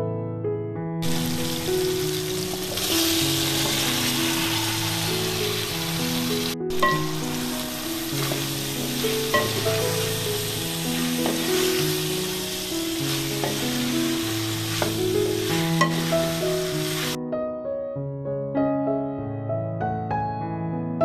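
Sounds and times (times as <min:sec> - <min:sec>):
soft keyboard music: 0:00.0 - 0:21.0
food sizzling in a pan: 0:01.0 - 0:17.2.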